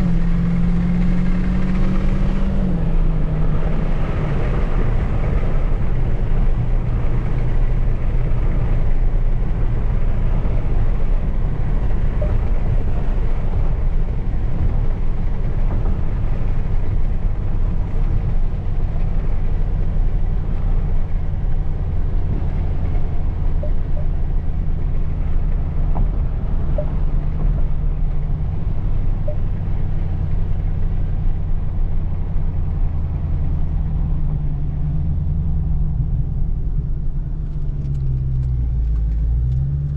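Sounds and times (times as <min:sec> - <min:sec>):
car engine rumbling: 0:00.0 - 0:39.9.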